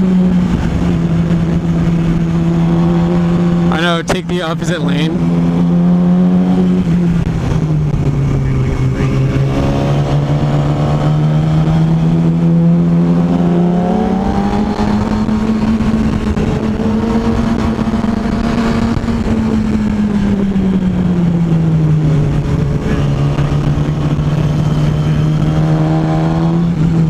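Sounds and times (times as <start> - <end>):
road and wind noise: 0.0 - 27.0
vehicle engine cruising: 0.0 - 27.0.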